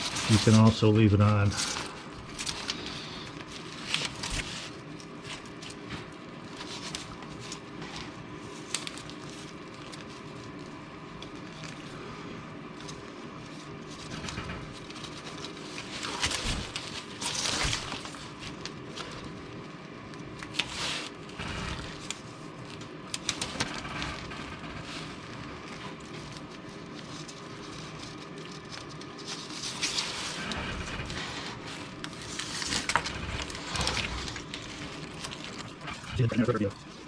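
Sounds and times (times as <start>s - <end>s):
rustling and scraping on exhaust pipe: 0.0s - 10.7s, 20.5s - 37.0s
low steady hum: 0.0s - 37.0s.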